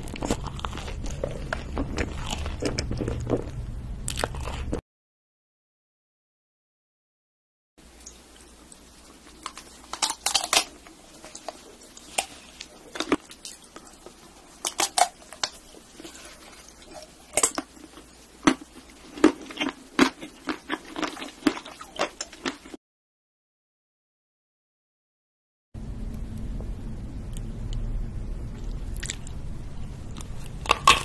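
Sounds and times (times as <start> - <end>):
chocolate shell crunching: 14.6 - 22.6, 30.2 - 31.0.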